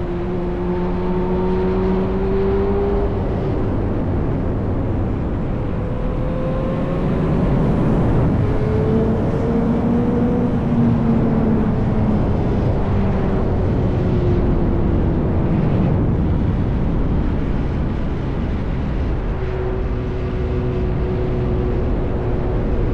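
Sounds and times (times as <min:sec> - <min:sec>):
motorcycle engine cruising: 0:00.0 - 0:15.2
wind and road rush: 0:00.0 - 0:22.9.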